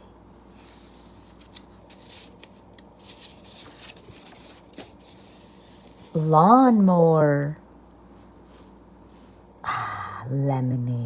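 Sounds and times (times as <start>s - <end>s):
book page rustling and turning: 0.5s - 6.3s, 8.1s - 9.4s.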